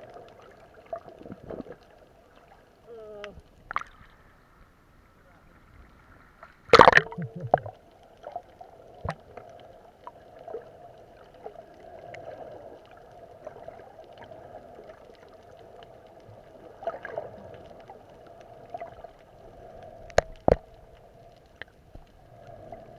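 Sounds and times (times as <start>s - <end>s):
water gurgling: 5.7s - 21.2s.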